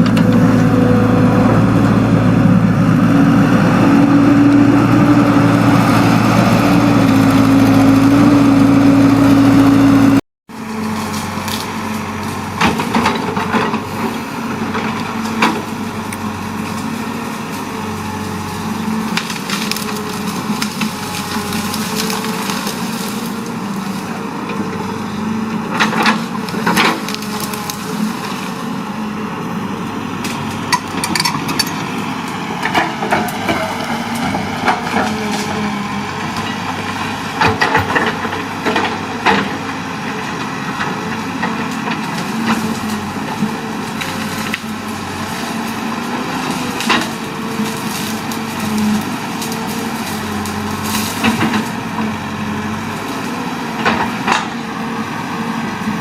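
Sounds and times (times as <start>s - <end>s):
excavator diesel engine: 0.0s - 56.0s
wood cracking and splintering: 10.8s - 24.9s, 25.7s - 28.7s, 30.2s - 54.6s.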